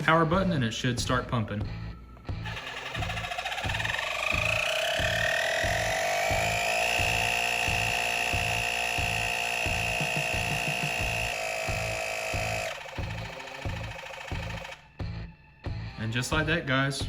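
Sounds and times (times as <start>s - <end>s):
background music with beat: 0.0s - 17.0s
tire inflator motor whine: 2.4s - 14.9s.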